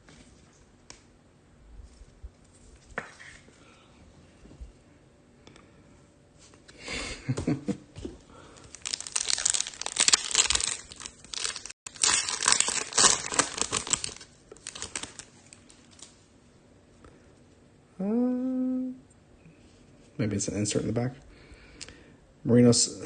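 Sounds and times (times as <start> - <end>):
foil wrapper tearing and crinkling: 8.6 - 16.1.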